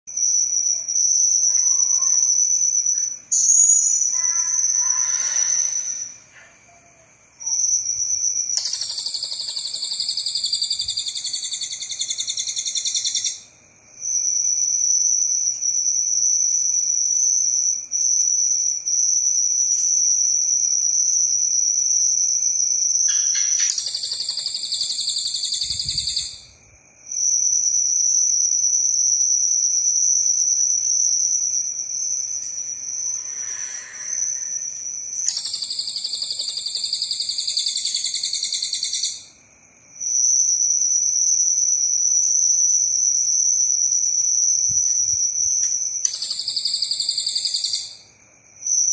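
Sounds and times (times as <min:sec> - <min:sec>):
bird buzzing chatter: 0:23.1 - 0:26.4.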